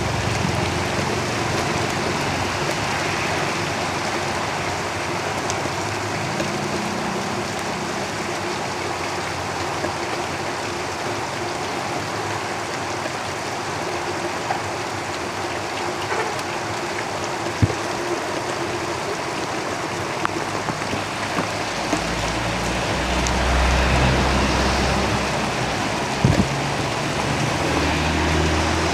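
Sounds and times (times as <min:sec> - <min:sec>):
rain on a tin roof: 0:00.0 - 0:28.9
vehicle passing rumble: 0:20.6 - 0:28.9.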